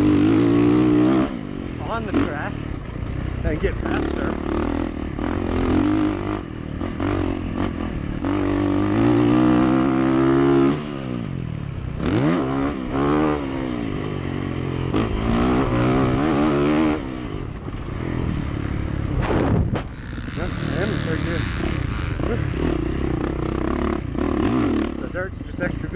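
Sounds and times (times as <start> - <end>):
dirt bike engine revving: 0.0 - 25.9.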